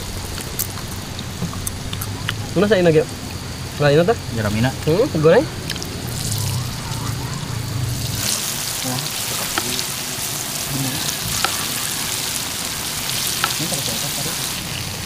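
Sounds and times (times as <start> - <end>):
food sizzling in hot oil: 0.0 - 15.0
oil popping: 4.4 - 15.0.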